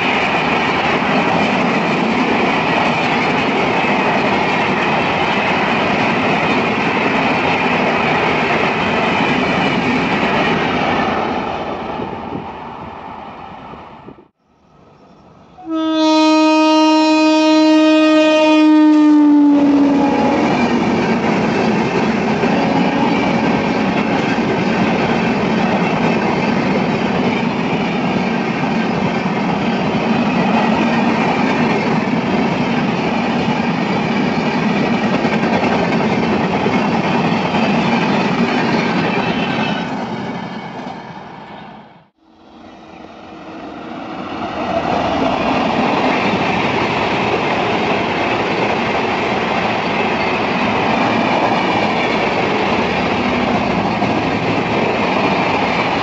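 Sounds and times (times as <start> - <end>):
train rolling on rails: 0.0 - 56.0.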